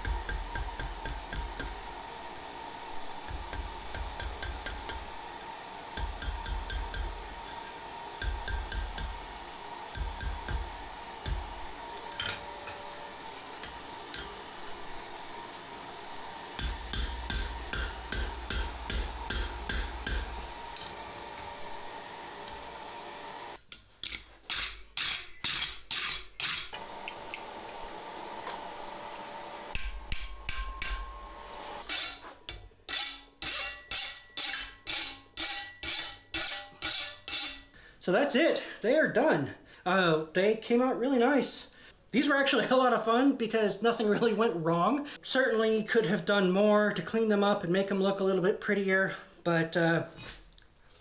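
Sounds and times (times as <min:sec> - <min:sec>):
hammer striking steel on anvil: 0:00.0 - 0:02.0, 0:03.2 - 0:05.2, 0:05.9 - 0:12.9, 0:13.6 - 0:14.4, 0:16.6 - 0:21.1, 0:29.7 - 0:37.7.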